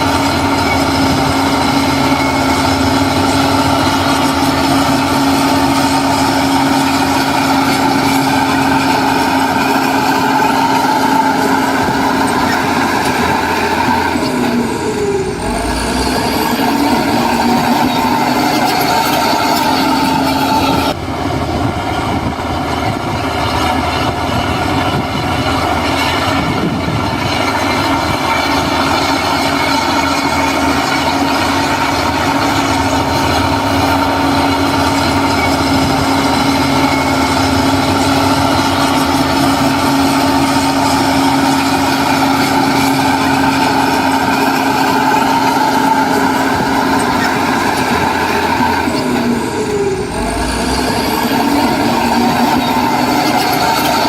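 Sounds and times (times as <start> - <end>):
heavy diesel machinery engine drone: 0.0 - 54.0
steady whine: 0.0 - 54.0.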